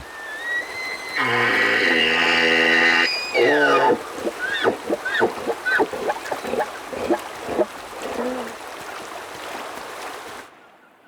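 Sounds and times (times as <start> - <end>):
elk chirps and mews: 0.0 - 8.6.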